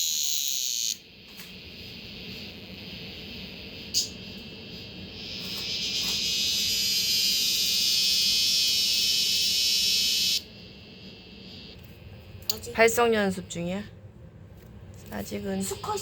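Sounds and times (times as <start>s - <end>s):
cicada buzzing drone: 0.0s - 4.2s, 5.0s - 11.8s.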